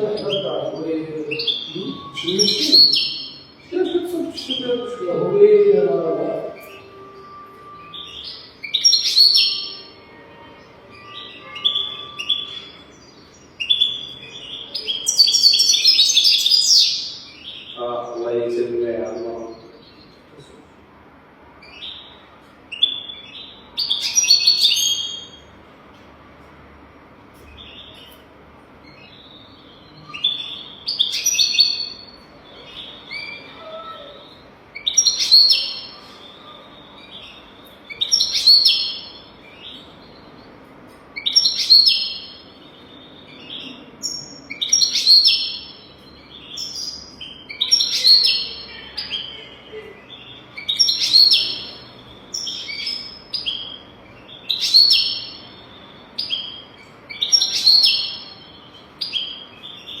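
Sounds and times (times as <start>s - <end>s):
goldfinch twittering song: 0.0s - 5.4s, 6.3s - 10.2s.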